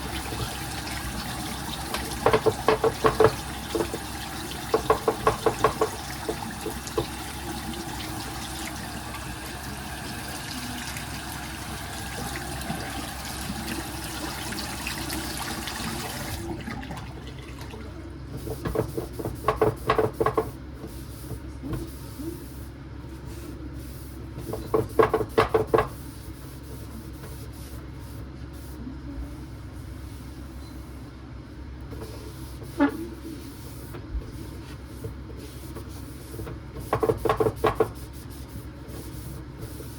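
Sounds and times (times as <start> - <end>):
water running from a tap: 0.0 - 18.0.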